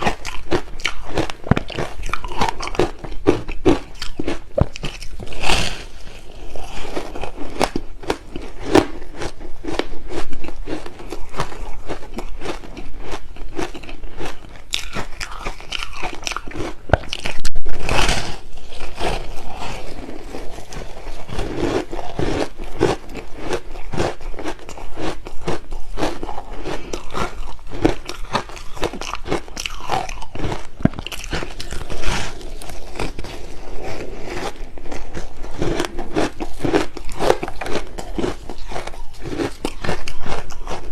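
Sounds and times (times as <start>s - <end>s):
crunching and chewing ice: 0.0s - 40.9s.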